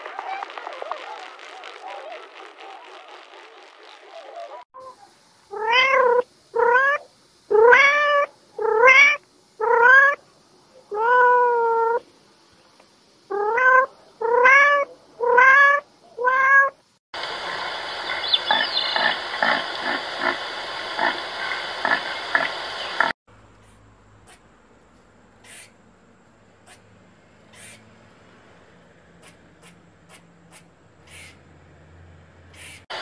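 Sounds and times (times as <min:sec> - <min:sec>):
steady hiss: 0:00.0 - 0:14.2, 0:16.8 - 0:23.8
cat meowing: 0:05.5 - 0:10.2, 0:10.9 - 0:12.0, 0:13.3 - 0:16.8.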